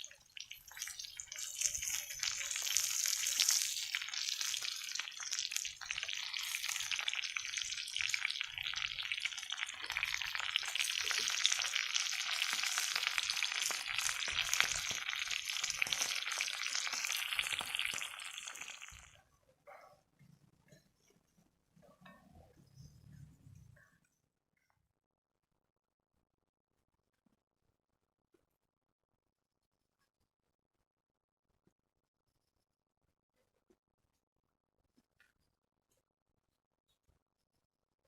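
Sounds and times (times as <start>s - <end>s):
food sizzling in a pan: 0.0s - 19.2s.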